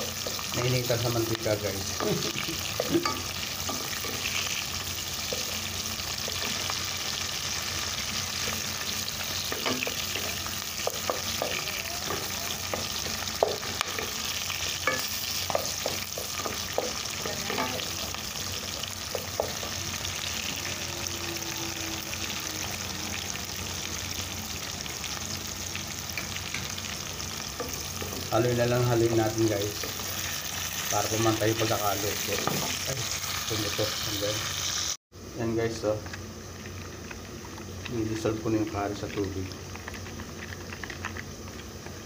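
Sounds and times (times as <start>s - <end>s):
food sizzling in hot oil: 0.0s - 42.0s.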